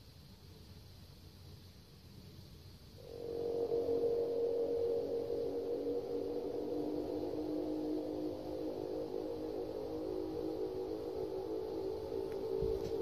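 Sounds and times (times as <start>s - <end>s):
low droning hum: 3.0s - 13.0s.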